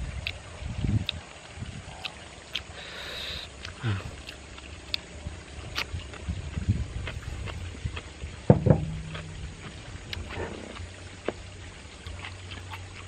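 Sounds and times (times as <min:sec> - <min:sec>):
wet chewing and lip-smacking: 0:01.0 - 0:01.2, 0:01.9 - 0:08.2, 0:08.9 - 0:13.0
man's throaty sound of enjoyment: 0:02.8 - 0:04.4.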